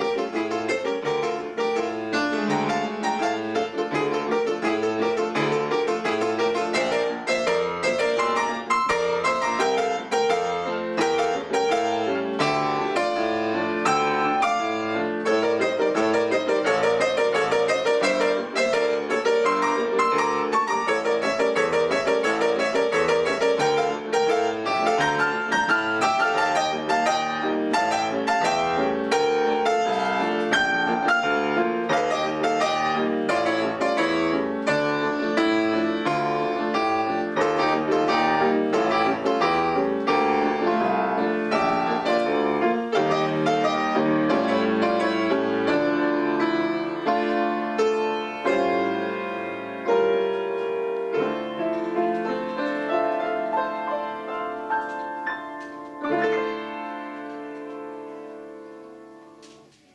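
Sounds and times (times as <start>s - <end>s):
piano duet with quick notes: 0.0s - 59.9s.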